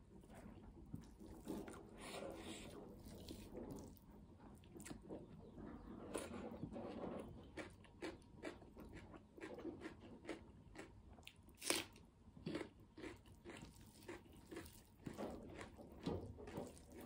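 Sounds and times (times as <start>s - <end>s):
chewing with wet smacking: 0.2s - 5.3s, 7.4s - 17.0s
food crunch: 7.4s - 17.0s.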